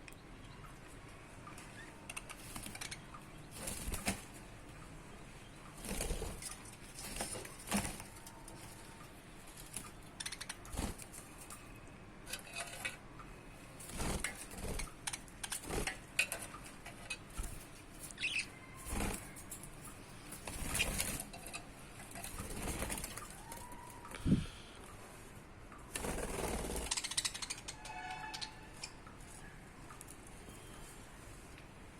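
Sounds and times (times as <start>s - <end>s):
budgerigars fluttering wings: 2.2s - 4.4s, 13.9s - 16.1s, 20.4s - 21.4s, 25.9s - 27.4s.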